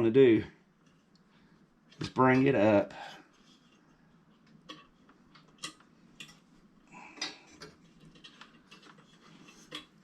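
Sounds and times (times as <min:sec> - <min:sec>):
faint metallic clicks and taps: 0:03.3 - 0:06.5.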